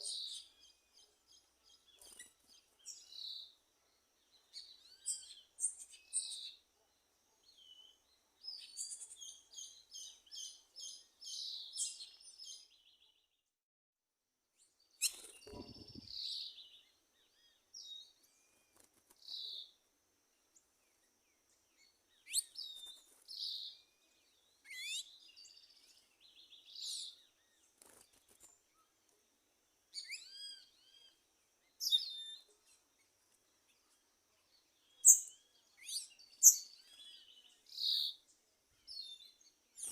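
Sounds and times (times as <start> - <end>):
birds chirping and whistling: 15.0 - 16.7, 24.7 - 27.2, 30.0 - 31.1, 31.8 - 32.4, 35.0 - 38.2.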